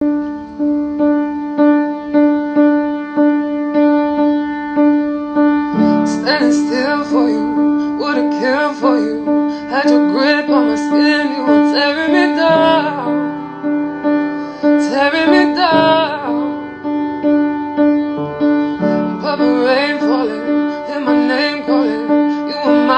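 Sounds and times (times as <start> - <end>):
piano repeated note: 0.0 - 22.9
woman singing: 6.0 - 13.4, 14.7 - 16.7, 19.0 - 22.9.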